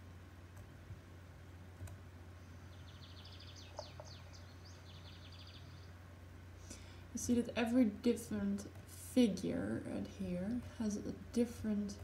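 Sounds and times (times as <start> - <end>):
faint low hum: 0.0 - 12.0
bird song from a recording: 2.2 - 6.2.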